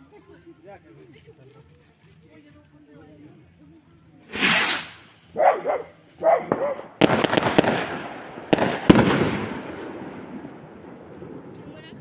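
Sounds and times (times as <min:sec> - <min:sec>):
firework whoosh: 0:04.3 - 0:11.1
fireworks bangs and crackles: 0:04.3 - 0:12.0.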